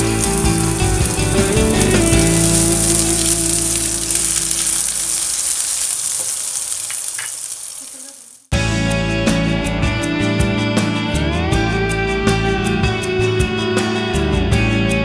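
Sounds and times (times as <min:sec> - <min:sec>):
background music: 0:00.0 - 0:05.2, 0:08.5 - 0:15.0
food frying in oil: 0:00.0 - 0:08.5.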